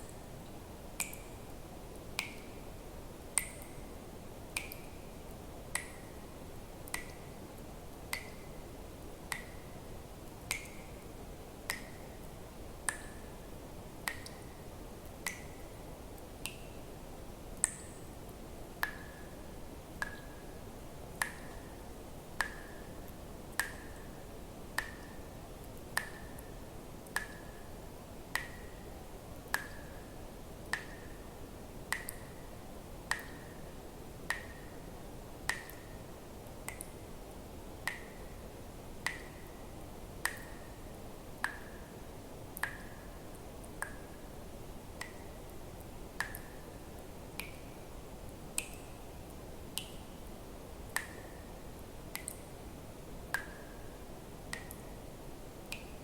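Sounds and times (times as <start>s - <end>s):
faint steady hiss: 0.0s - 56.0s
water drops plinking into water: 1.0s - 1.4s, 2.1s - 2.6s, 3.4s - 3.8s, 4.5s - 6.2s, 6.8s - 7.3s, 8.1s - 8.5s, 9.3s - 9.8s, 10.4s - 11.1s, 11.7s - 12.3s, 12.9s - 13.4s, 14.0s - 14.5s, 17.6s - 18.0s, 20.0s - 20.5s, 21.1s - 21.7s, 22.4s - 24.1s, 24.8s - 25.2s, 26.0s - 27.6s, 28.3s - 28.8s, 29.5s - 31.2s, 31.9s - 32.3s, 33.1s - 33.6s, 34.3s - 34.8s, 35.5s - 36.0s, 36.6s - 37.0s, 37.8s - 38.3s, 39.0s - 39.5s, 40.2s - 40.7s, 42.6s - 43.0s, 43.8s - 44.2s, 46.2s - 46.6s, 47.4s - 47.7s, 48.5s - 48.9s, 50.9s - 51.4s, 52.1s - 52.5s, 53.3s - 53.8s, 54.5s - 54.9s.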